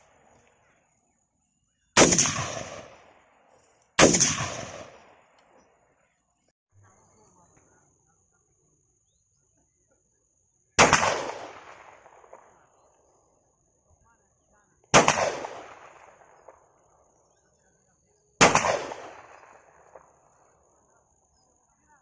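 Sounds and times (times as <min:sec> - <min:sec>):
gunshots with echo: 0:02.0 - 0:03.2, 0:04.0 - 0:05.3, 0:10.8 - 0:12.6, 0:14.9 - 0:16.6, 0:18.4 - 0:20.1.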